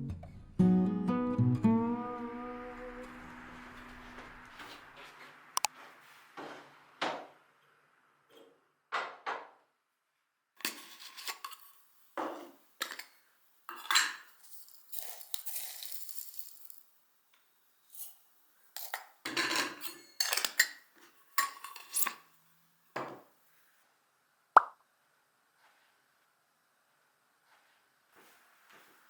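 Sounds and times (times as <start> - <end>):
dishes and utensils clinking: 10.6 - 16.7, 18.8 - 22.3.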